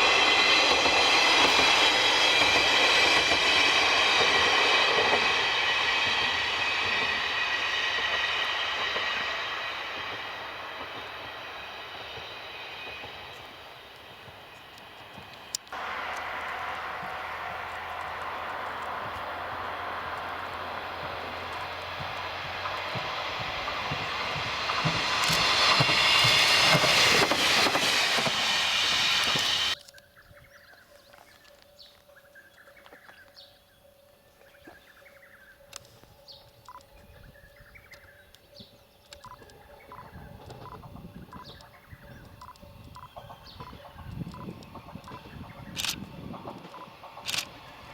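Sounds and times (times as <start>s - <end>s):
diesel railcar rumble: 0.0s - 29.8s, 39.2s - 47.9s
bird chirps: 29.8s - 47.8s.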